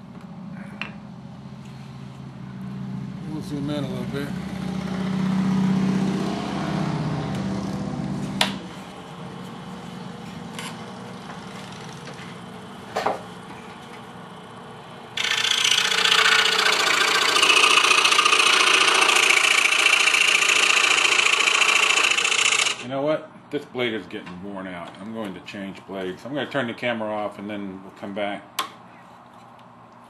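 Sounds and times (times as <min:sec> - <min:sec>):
saw blade rasping through wood: 0:15.2 - 0:22.8
scroll saw running: 0:15.2 - 0:22.9.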